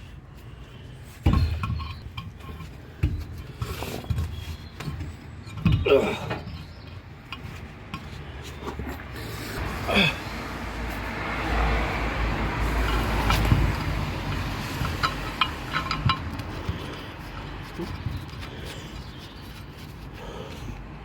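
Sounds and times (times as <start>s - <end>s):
metal clanks and knocks: 1.2s - 8.2s, 12.8s - 17.1s.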